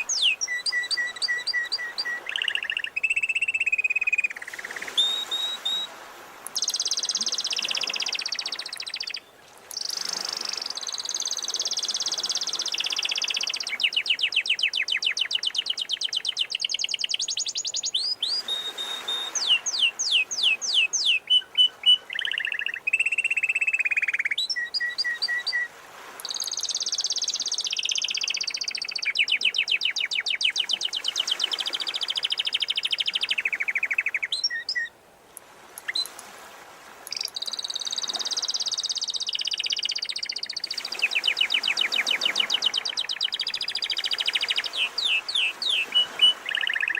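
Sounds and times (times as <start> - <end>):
canary singing trills: 0.0 - 5.8, 6.5 - 34.9, 37.1 - 46.9.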